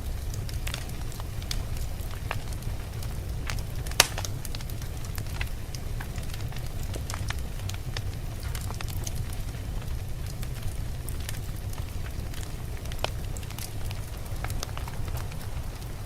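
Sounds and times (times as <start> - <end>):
fire popping: 0.0 - 16.0
wood fire crackling: 0.0 - 16.0
low rumble: 9.2 - 16.0.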